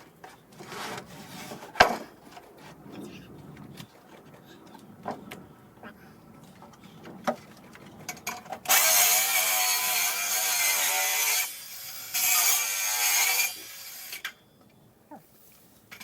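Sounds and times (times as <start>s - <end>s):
circular saw cutting wood: 8.7s - 14.3s.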